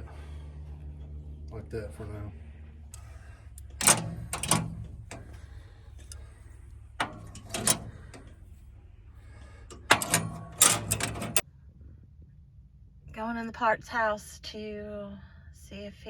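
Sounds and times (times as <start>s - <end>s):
low steady hum: 0.0s - 16.0s
tools knocking and clattering: 3.0s - 8.6s, 9.4s - 11.4s.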